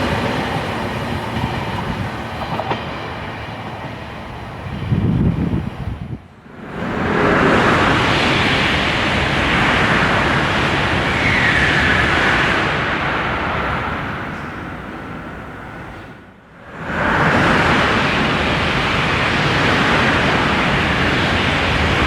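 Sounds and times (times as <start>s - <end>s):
high-speed train passing: 0.0s - 22.0s.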